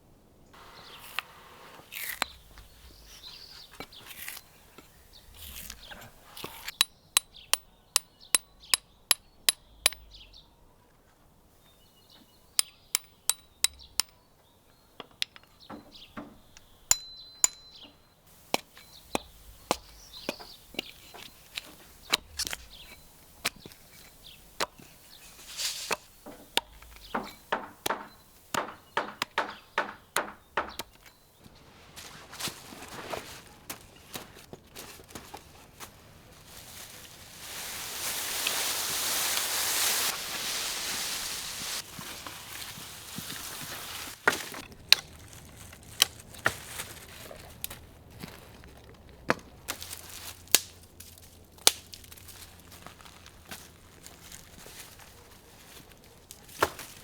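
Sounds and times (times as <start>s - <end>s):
sharp taps and clicks: 25.9s - 31.2s.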